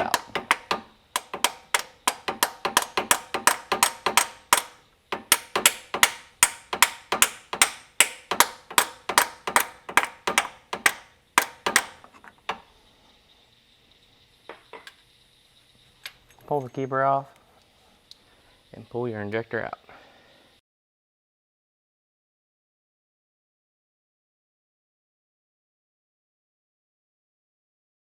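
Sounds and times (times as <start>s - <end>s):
faint knocks: 0.0s - 12.6s
hammer tapping on steel: 0.0s - 12.6s.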